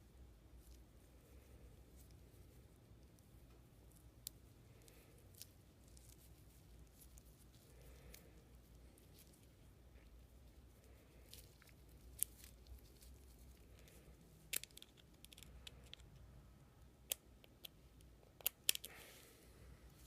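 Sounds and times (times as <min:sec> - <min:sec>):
small metal parts clicking: 0:14.5 - 0:16.1.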